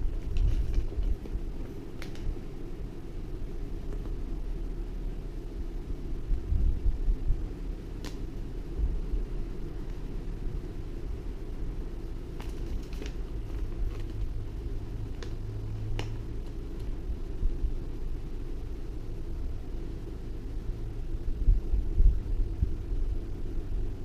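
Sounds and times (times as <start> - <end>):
low rumble: 13.2 - 24.0.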